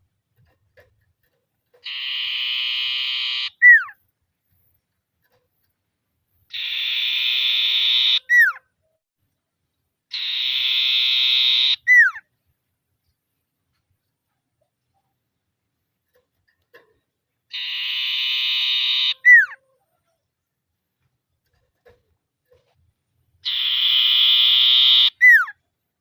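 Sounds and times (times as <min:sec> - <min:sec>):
bird rattling trill call: 0:01.8 - 0:04.0, 0:17.5 - 0:19.6, 0:23.4 - 0:25.5.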